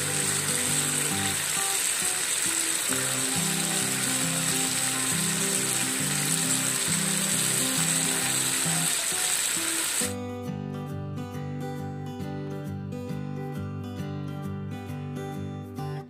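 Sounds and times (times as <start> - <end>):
sauce sizzling in a pan: 0.0 - 10.2
background music: 0.0 - 16.0.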